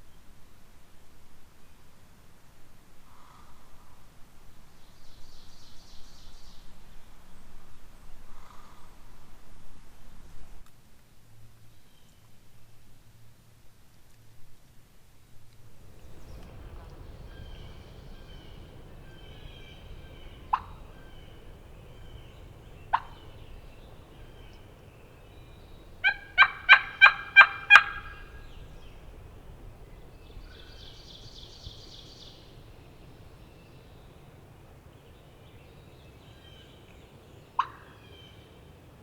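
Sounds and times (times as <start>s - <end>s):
songbirds chirping: 15.8s - 39.0s
turkey call clucks: 16.0s - 32.6s, 37.6s - 38.3s
turkey call raspy yelps: 16.4s - 29.6s, 37.6s - 38.3s.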